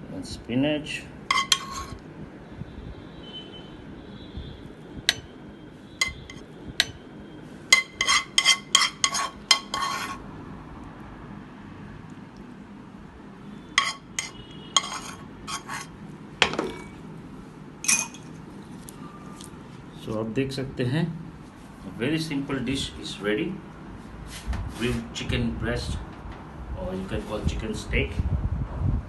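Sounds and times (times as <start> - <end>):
utensil clinking against plate: 1.3 - 2.0, 6.0 - 7.0, 7.7 - 10.2, 13.8 - 17.0, 17.8 - 18.4.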